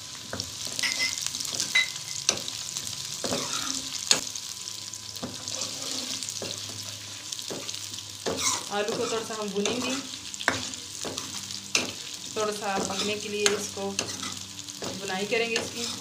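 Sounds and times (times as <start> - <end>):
food sizzling in hot oil: 0.0 - 16.0
metal ladle scraping a pan: 5.3 - 6.7, 12.8 - 14.4, 15.6 - 16.0.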